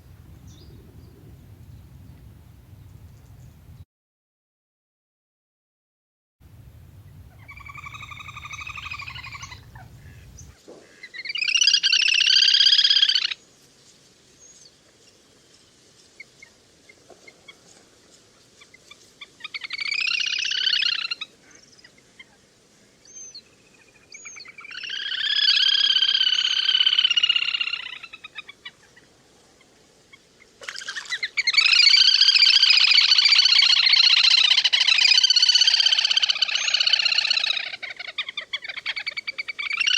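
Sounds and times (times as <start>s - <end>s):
low hum: 6.4s - 10.5s
whistling duck calls: 7.1s - 13.2s.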